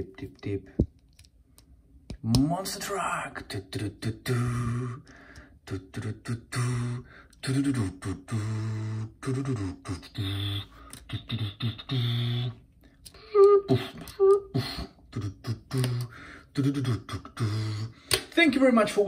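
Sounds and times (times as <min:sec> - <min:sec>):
person making engine noises: 0:03.4 - 0:18.3.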